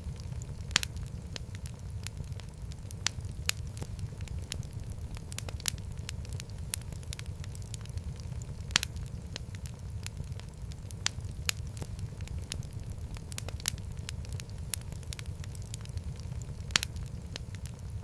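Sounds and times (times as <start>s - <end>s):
low rumble of fire: 0.0s - 18.0s
wood fire crackling and popping: 0.0s - 18.0s.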